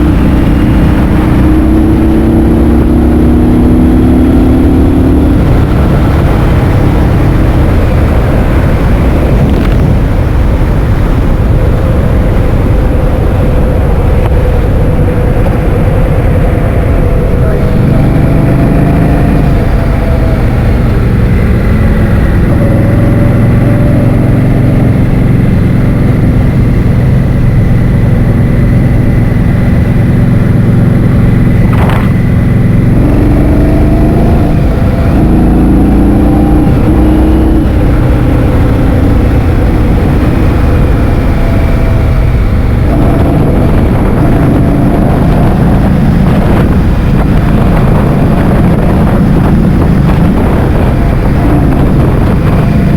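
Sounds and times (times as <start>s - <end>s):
vehicle engine running: 0.0s - 52.9s
wind buffeting microphone: 0.0s - 52.9s.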